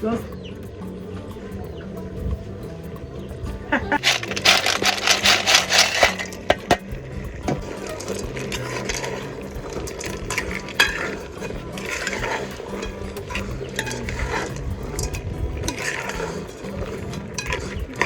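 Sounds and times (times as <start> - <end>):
spoon clinking against pot: 4.0 - 18.0
spoon stirring in pot: 4.0 - 18.0.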